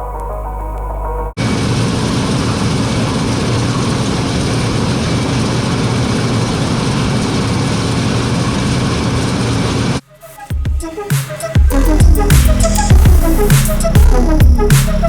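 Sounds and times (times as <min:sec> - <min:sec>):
heavy farm machine engine running: 0:01.4 - 0:10.0.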